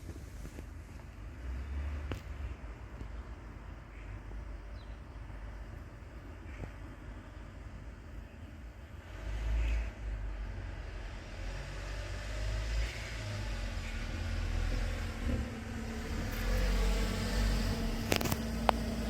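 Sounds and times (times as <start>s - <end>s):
low rumble: 12.6s - 19.0s.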